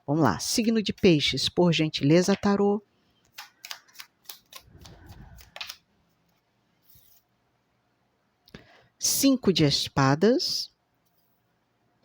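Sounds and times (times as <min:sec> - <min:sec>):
cards rustling: 0:03.2 - 0:07.2
cards clicking: 0:03.3 - 0:05.8.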